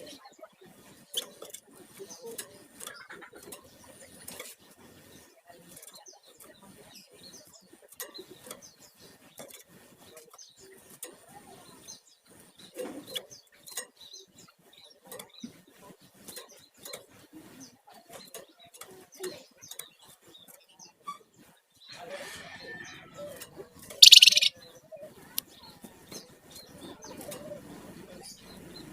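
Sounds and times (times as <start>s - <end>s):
bird singing high chirps: 24.0s - 24.6s.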